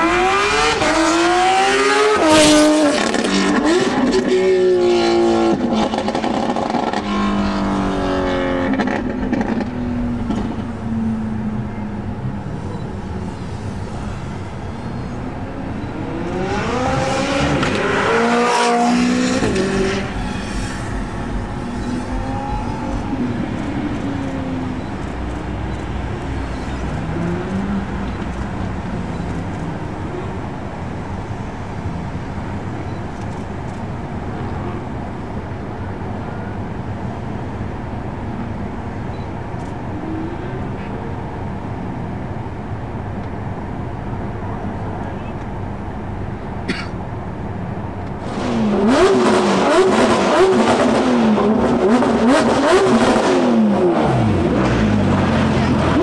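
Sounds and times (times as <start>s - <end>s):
engine drone of racing cars: 0.0s - 56.0s
sports car engine revving: 15.9s - 20.3s, 48.2s - 56.0s.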